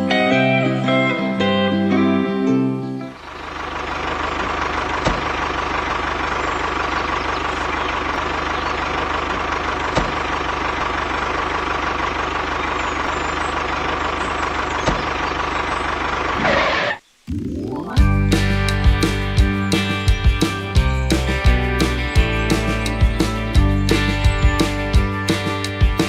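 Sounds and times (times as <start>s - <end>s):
small tractor motor running: 3.1s - 17.0s.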